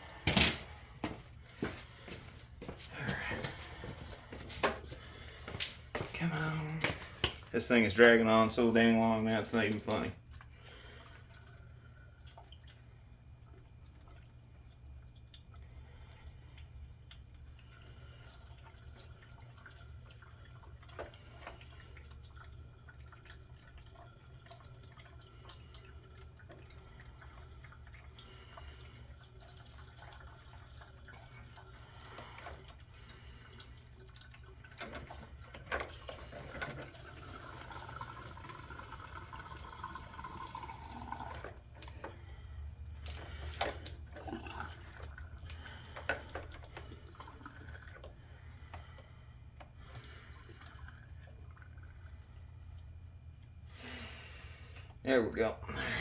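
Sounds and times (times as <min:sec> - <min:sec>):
gasoline pouring into tank: 0:00.0 - 0:53.0.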